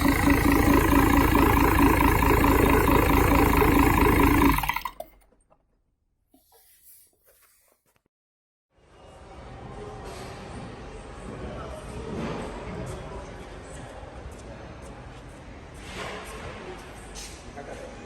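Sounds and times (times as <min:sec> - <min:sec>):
diesel engine running: 0:00.0 - 0:05.1.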